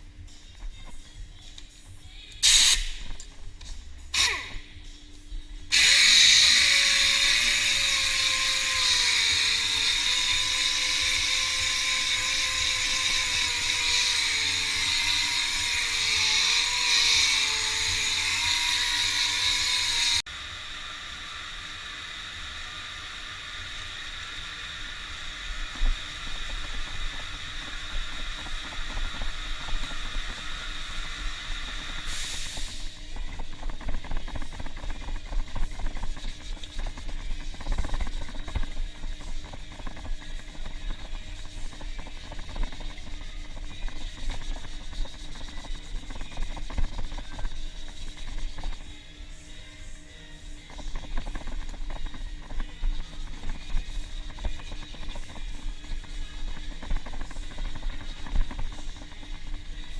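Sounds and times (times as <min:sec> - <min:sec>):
rotary power tool whine: 0:05.7 - 0:35.2.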